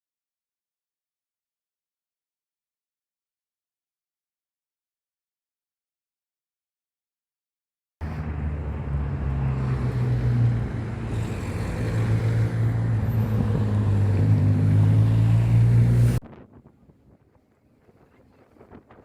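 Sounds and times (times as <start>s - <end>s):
wind buffeting microphone: 11.0s - 14.5s, 15.2s - 19.0s.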